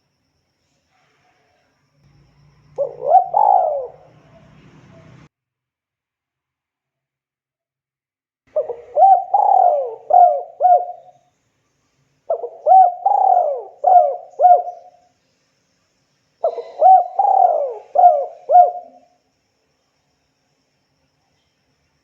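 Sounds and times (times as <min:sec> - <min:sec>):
dove cooing: 0:02.8 - 0:05.3, 0:08.5 - 0:11.1, 0:12.3 - 0:15.0, 0:16.4 - 0:19.2.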